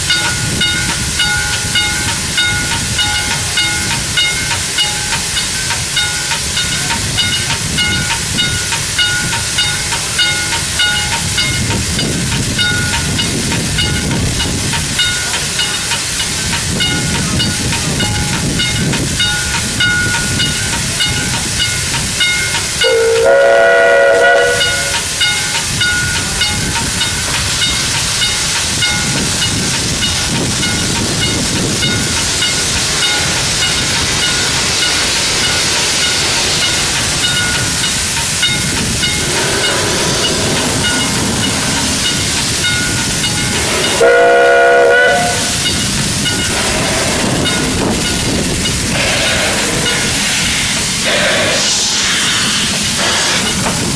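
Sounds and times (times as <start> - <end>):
locomotive rhythmic beat: 0.0 - 53.9
steam hissing: 0.0 - 53.9
steam whistle blast: 22.8 - 25.1, 43.6 - 45.6.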